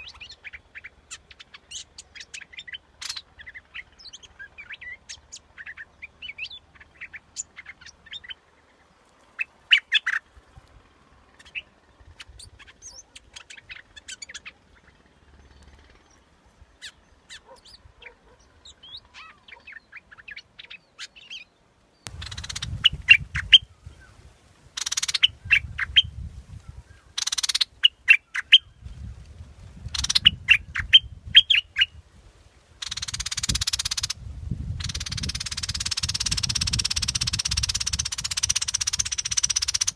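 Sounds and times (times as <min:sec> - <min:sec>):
low rumble and hiss: 0:00.0 - 0:19.4, 0:21.4 - 0:28.0
bird chirping and whistling: 0:29.9 - 0:31.9, 0:34.8 - 0:39.9.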